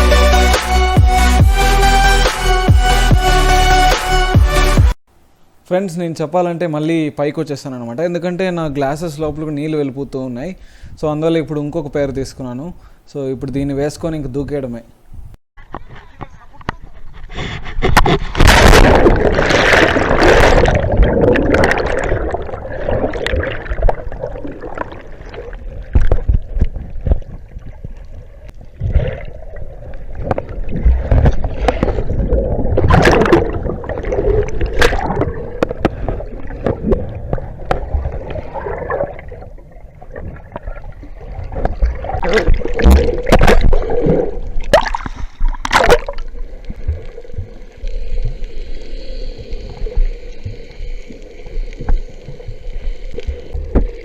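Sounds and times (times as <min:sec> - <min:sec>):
water gurgling and sloshing: 0:16.9 - 0:54.0
water splashes and thuds: 0:17.7 - 0:29.4, 0:30.0 - 0:47.6, 0:53.2 - 0:54.0.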